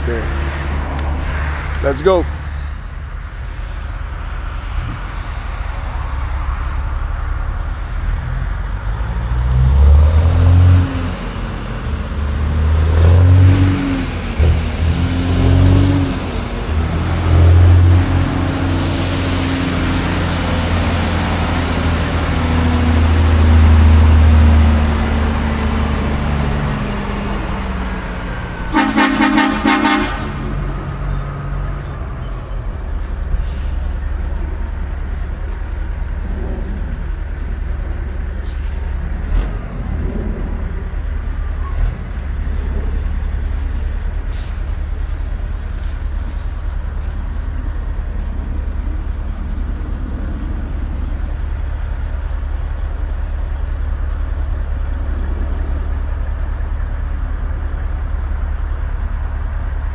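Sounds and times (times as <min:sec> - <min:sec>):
diesel truck engine running: 0:14.0 - 0:59.9
truck horn blast: 0:28.7 - 0:30.7.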